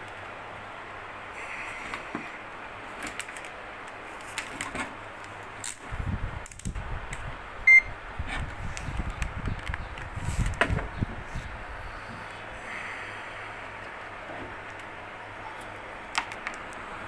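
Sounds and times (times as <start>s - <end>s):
multimeter beep: 7.7s - 7.9s.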